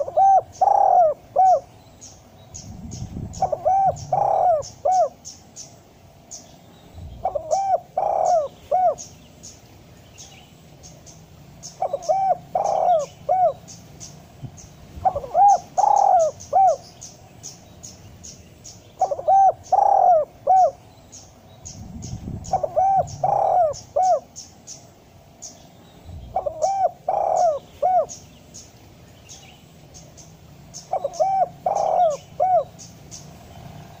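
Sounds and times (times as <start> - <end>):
dove cooing: 0.0 - 1.8, 2.9 - 5.3, 7.2 - 9.2, 11.6 - 13.8, 15.0 - 17.0, 19.0 - 20.8, 22.1 - 24.4, 26.3 - 28.3, 30.8 - 33.2
small birds chirping: 0.0 - 34.0.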